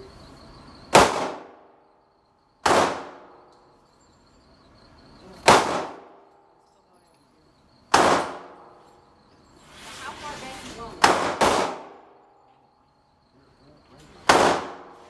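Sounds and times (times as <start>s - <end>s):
gunshots with echoing tail: 0.9s - 1.7s, 2.6s - 3.4s, 5.4s - 6.2s, 7.9s - 8.8s, 11.0s - 12.2s, 14.2s - 15.0s.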